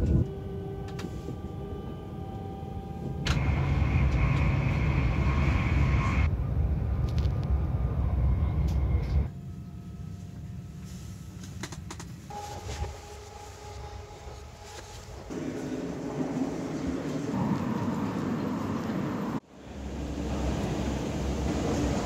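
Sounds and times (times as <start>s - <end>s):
train running rumble with hiss: 0.0s - 9.3s, 10.2s - 22.0s
faint steady tones: 12.3s - 15.5s.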